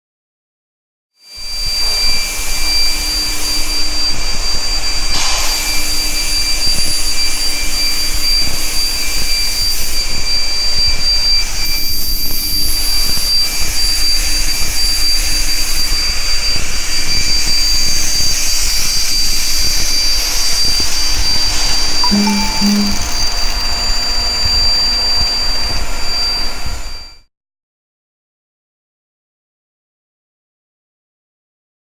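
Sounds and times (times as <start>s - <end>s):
high-pitched whine: 1.4s - 24.2s.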